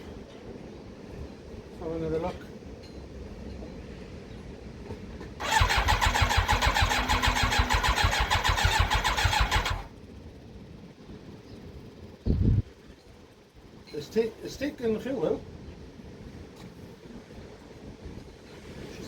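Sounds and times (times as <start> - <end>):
electric starter cranking engine: 5.4 - 9.9.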